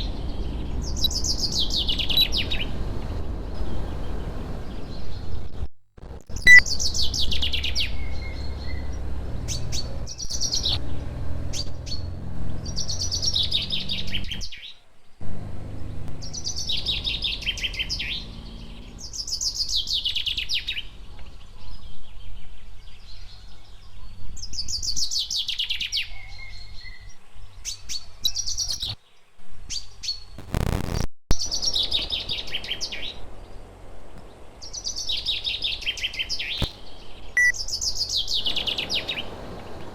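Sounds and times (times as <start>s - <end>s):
songbird trilling: 6.4s - 6.8s, 37.4s - 39.2s.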